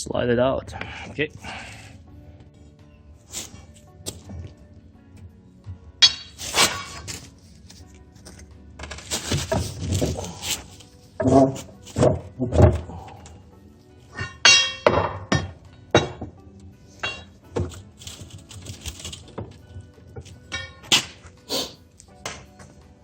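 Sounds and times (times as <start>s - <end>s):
ringing metal clank: 14.2s - 16.2s, 20.5s - 21.2s.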